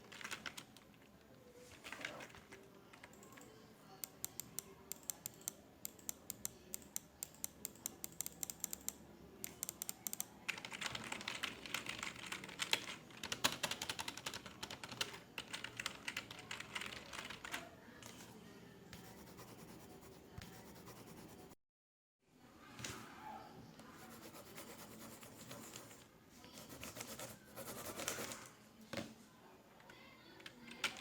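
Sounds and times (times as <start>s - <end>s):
computer keyboard typing: 0.0s - 0.9s, 2.9s - 17.6s.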